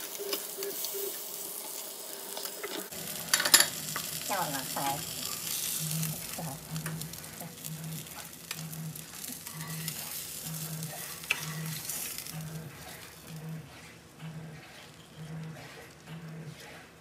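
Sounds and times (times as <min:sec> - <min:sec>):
fish sizzling in a frying pan: 0:00.0 - 0:07.5
spatula scraping a pan: 0:02.7 - 0:17.0.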